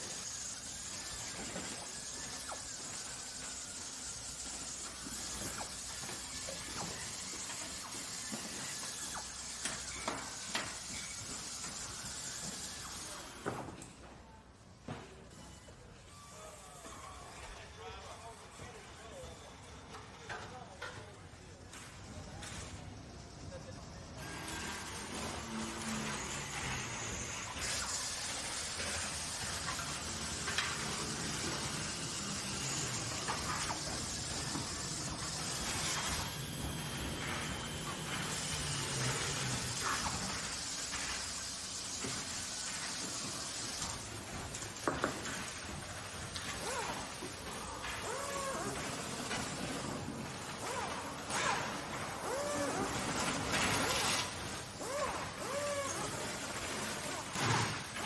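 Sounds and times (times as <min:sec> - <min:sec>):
factory machinery hissing: 0:00.0 - 0:13.8, 0:21.6 - 0:58.0
factory steady hiss: 0:25.9 - 0:46.4.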